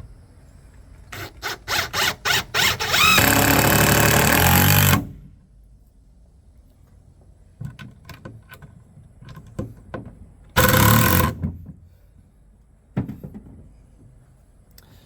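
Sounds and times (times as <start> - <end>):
cordless drill driving into wood: 1.1 - 5.3, 10.6 - 11.5.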